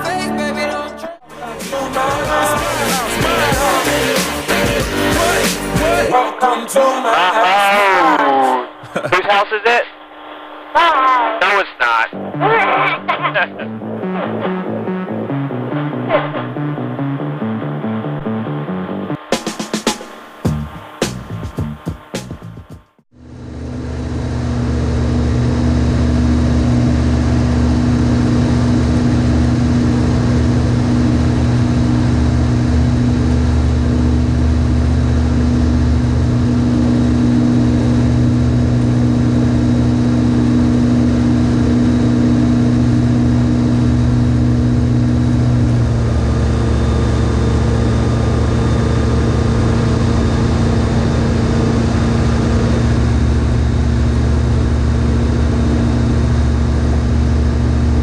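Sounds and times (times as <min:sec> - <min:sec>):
propeller aircraft engine droning: 0:23.2 - 0:58.0.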